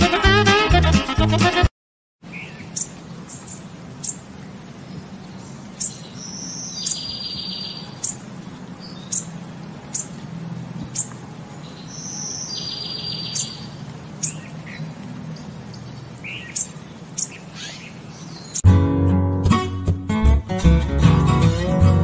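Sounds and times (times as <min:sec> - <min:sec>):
small bird chirping: 0:02.3 - 0:10.2, 0:10.8 - 0:18.6.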